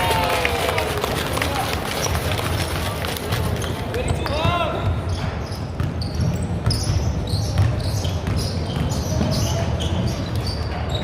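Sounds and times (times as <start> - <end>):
basketball bouncing on court: 3.3 - 11.0
sneakers squeaking: 3.3 - 11.0.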